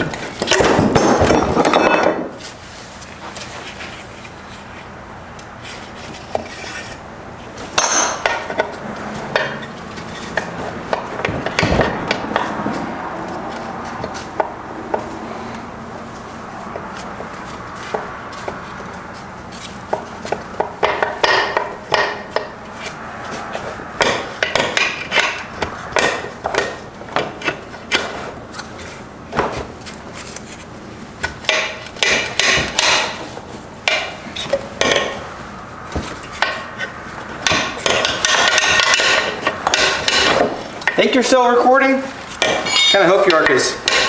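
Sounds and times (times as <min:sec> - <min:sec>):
hand tools clinking on metal: 0:07.8 - 0:08.7, 0:37.4 - 0:44.0.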